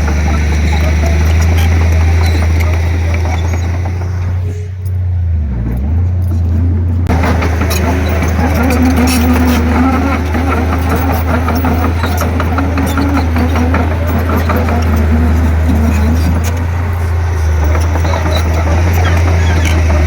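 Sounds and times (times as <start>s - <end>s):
bulldozer diesel engine droning: 0.0s - 20.0s.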